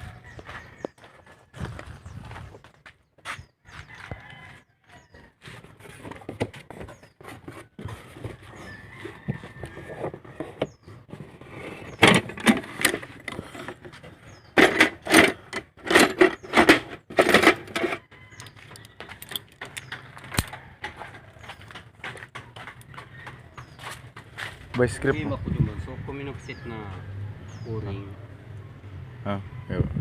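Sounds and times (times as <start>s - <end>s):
metal tools clattering and clinking: 14.6s - 21.9s.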